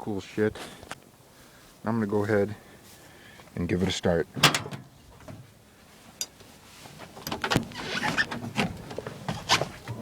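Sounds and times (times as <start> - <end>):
knocks and clunks: 4.3 - 5.5, 7.1 - 10.0
rustling: 4.7 - 10.0.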